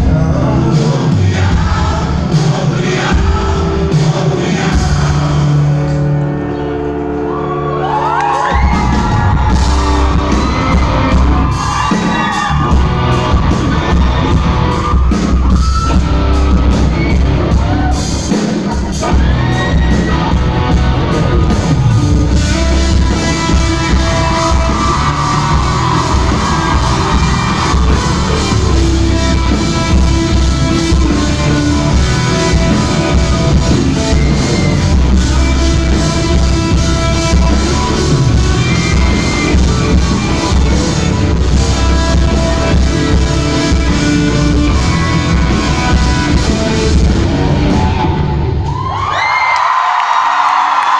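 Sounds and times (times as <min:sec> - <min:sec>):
live band playing: 0:00.0 - 0:48.9
drums: 0:00.0 - 0:50.9
voices shouting and whooping: 0:07.2 - 0:18.2, 0:21.3 - 0:30.1.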